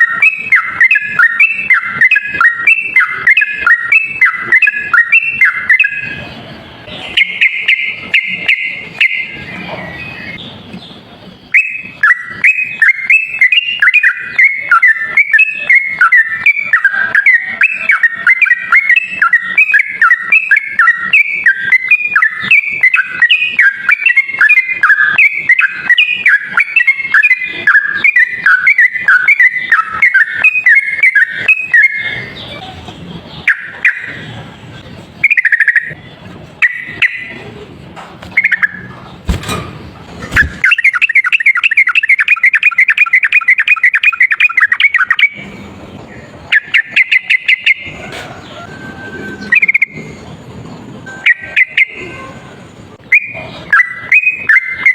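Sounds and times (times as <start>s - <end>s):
bird singing chattering runs: 38.2s - 48.7s.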